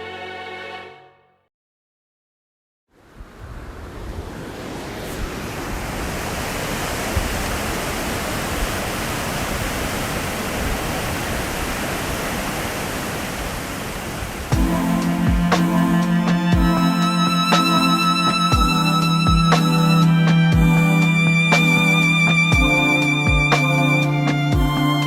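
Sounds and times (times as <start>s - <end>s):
music with sustained notes: 0.0s - 1.4s, 14.5s - 25.0s
waterfall rushing: 3.8s - 25.0s.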